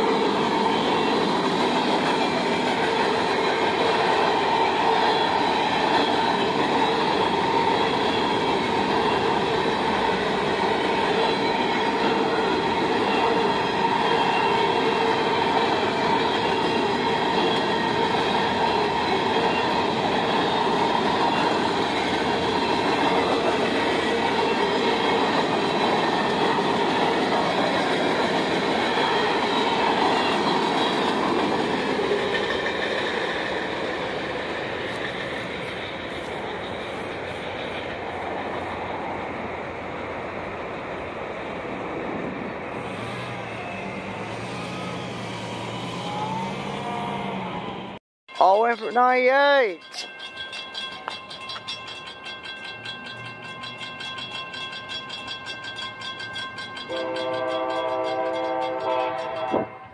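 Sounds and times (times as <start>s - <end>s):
freight train rolling past: 0.0s - 59.9s
high ringing tone: 48.3s - 59.9s.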